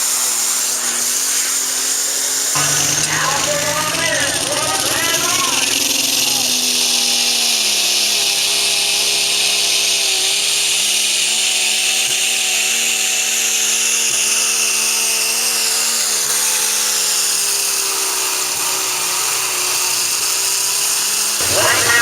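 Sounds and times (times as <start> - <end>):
tractor engine at high revs: 2.6 - 9.2, 21.0 - 22.0
loud hissing rush: 21.4 - 22.0.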